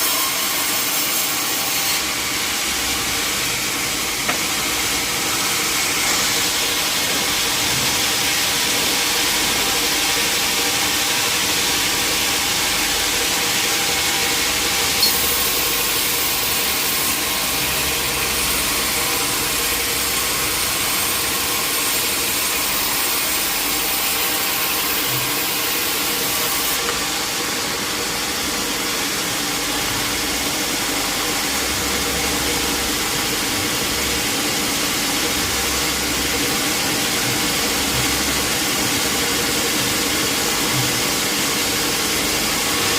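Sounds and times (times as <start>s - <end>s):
sawmill machinery running: 0.0s - 42.9s.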